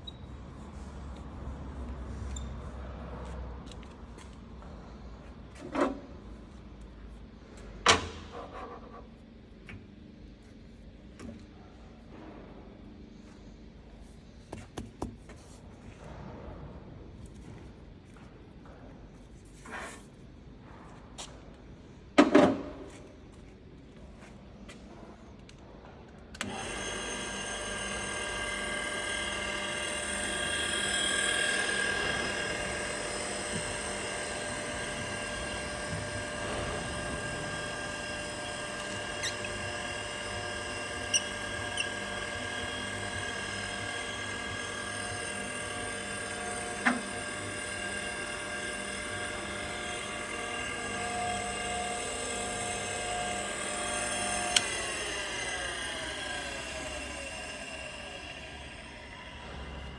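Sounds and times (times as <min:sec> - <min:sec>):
surface grinder whining: 0:26.4 - 0:59.9.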